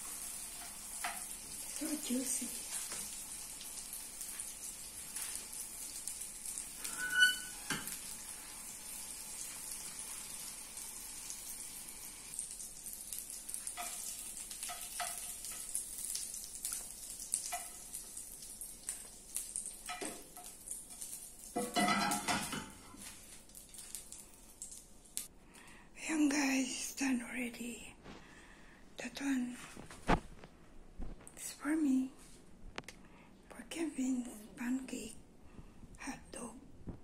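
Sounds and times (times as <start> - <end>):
sausages sizzling in a pan: 0.0 - 25.3.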